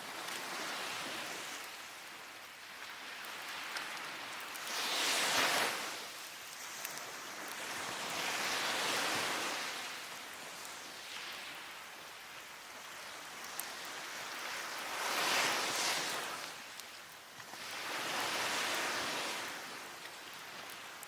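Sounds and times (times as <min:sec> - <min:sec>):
ocean waves breaking: 0:00.0 - 0:16.8, 0:17.5 - 0:21.0
wood fire crackling: 0:00.0 - 0:21.0.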